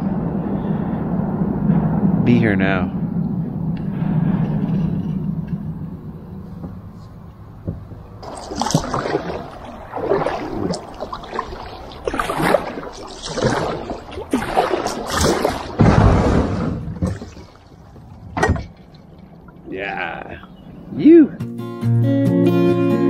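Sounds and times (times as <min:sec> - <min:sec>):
water splashing against kayak: 0:07.7 - 0:20.6.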